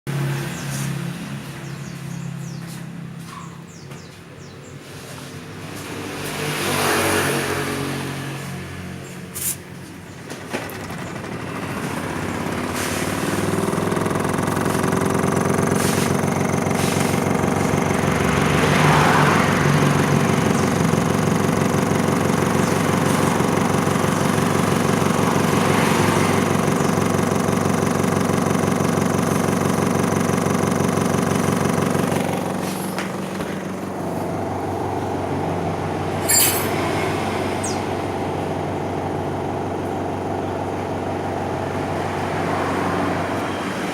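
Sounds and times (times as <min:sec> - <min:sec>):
washing machine motor humming: 0:09.9 - 0:43.9.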